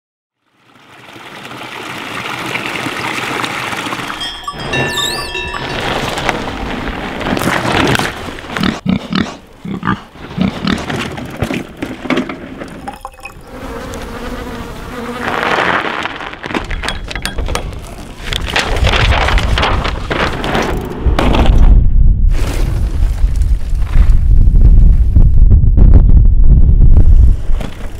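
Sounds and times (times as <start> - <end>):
bike tyres on dirt and gravel: 0.4 - 14.1, 14.7 - 25.4, 26.8 - 27.9
bike knocking: 16.6 - 18.1.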